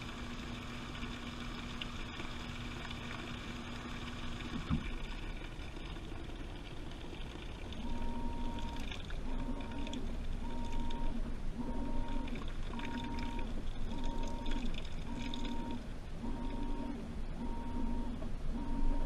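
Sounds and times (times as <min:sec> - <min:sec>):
motor whine: 0:00.0 - 0:19.0
washing machine motor hum: 0:00.0 - 0:19.0.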